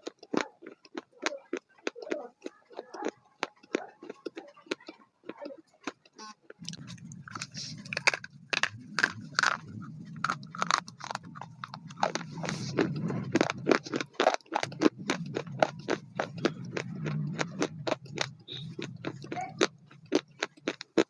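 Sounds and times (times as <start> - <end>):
chewing crunchy food: 0.0 - 21.0
low steady hum: 6.6 - 21.0.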